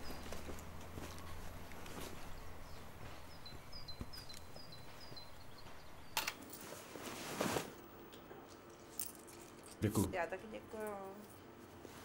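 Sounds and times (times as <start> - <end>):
small bird chirping: 2.2 - 6.2.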